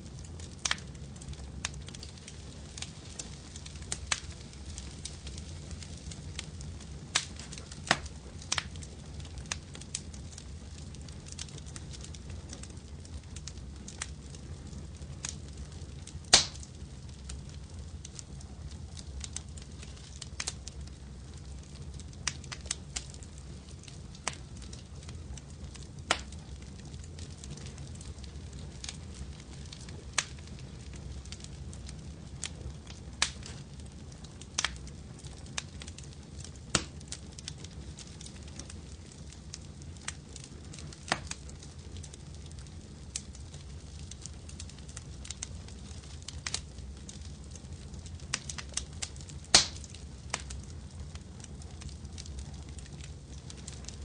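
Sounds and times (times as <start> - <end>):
low fire rumble: 0.0 - 54.0
wood fire pops and snaps: 0.1 - 54.0.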